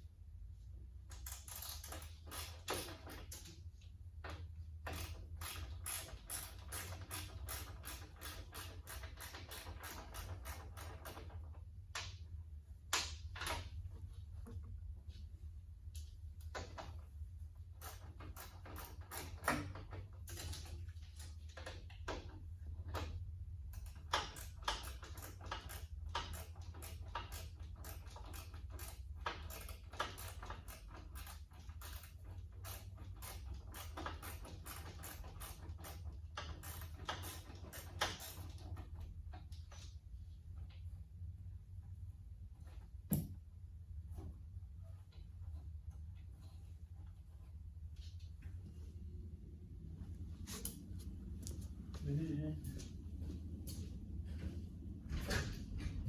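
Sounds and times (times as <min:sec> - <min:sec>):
low hum: 0:40.2 - 0:56.0.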